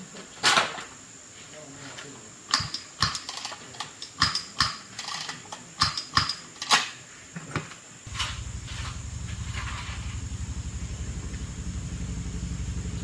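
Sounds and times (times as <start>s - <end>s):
sharp irregular clicks and knocks: 2.5s - 6.9s.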